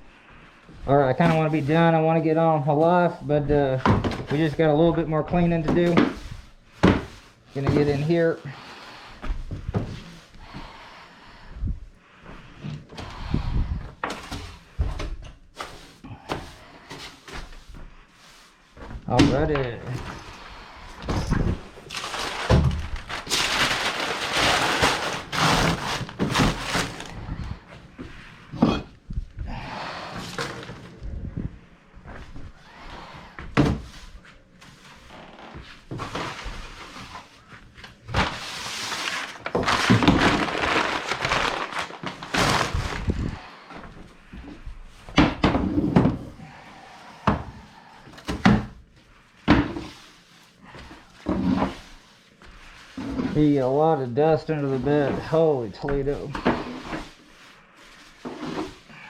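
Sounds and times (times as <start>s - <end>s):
objects thudding and knocking: 3.8s - 4.6s, 5.3s - 8.1s, 9.2s - 10.2s, 18.8s - 32.6s, 33.3s - 34.2s, 44.4s - 46.5s, 49.4s - 50.0s
broom sweeping floor: 5.3s - 19.1s, 29.1s - 41.2s, 49.0s - 59.0s
household objects knocking and thumping: 5.7s - 8.0s.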